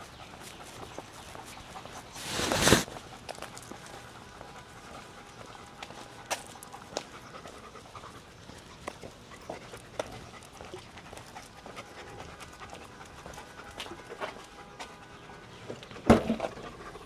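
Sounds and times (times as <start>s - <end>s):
dog panting: 6.7s - 14.4s.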